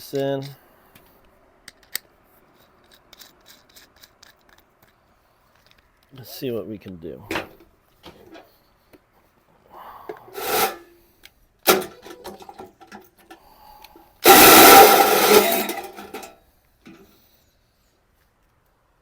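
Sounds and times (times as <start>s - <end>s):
hole saw cutting steel: 10.4s - 10.9s, 14.2s - 16.3s.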